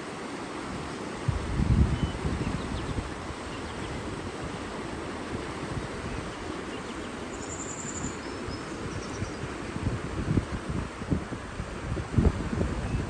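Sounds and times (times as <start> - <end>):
running water: 0.0 - 13.0
faint bird chirps: 6.7 - 9.4.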